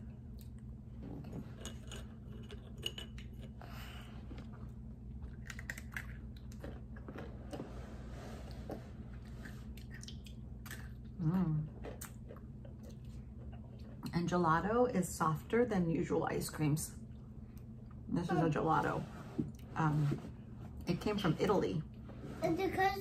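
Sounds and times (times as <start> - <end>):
chewing chocolate snacks: 0.0 - 7.6.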